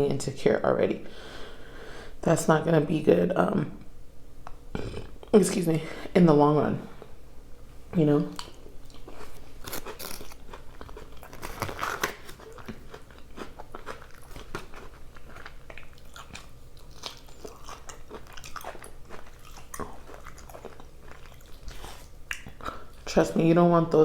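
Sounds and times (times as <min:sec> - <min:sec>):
person chewing crunchy food: 0:08.3 - 0:23.1.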